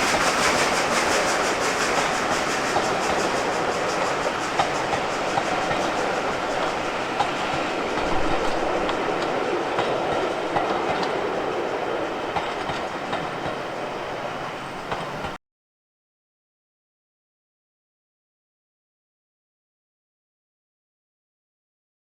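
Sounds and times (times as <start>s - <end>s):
train wheels rumbling on rails: 0.0s - 15.4s.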